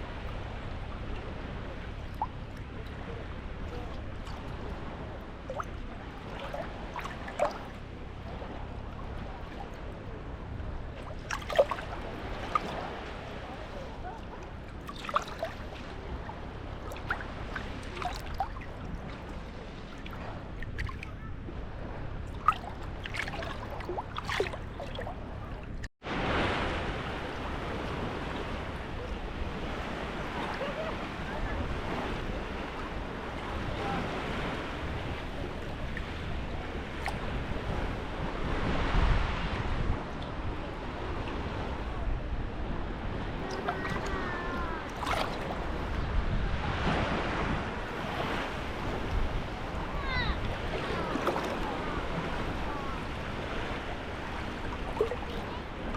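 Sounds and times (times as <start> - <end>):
surf washing: 0.0 - 55.9
water lapping at shoreline: 0.0 - 55.9
wind on microphone: 0.0 - 55.9
faint gliding call: 40.2 - 46.1.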